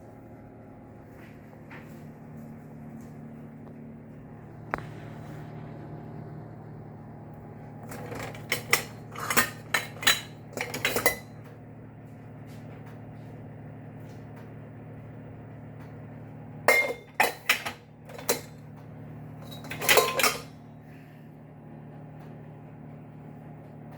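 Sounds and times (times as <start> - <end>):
steady low hum: 0.0 - 23.9
crockery and cutlery clinking: 7.9 - 11.3, 16.7 - 18.5, 19.4 - 20.5.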